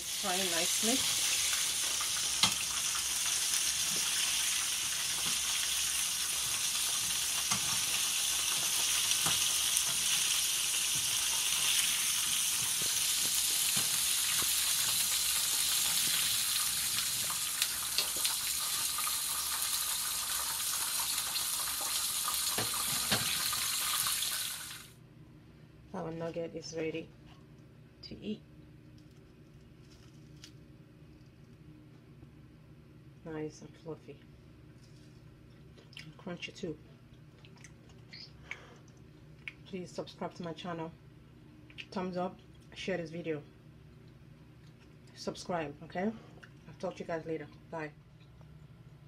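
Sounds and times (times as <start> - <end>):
nuggets sizzling in hot oil: 0.0 - 24.9.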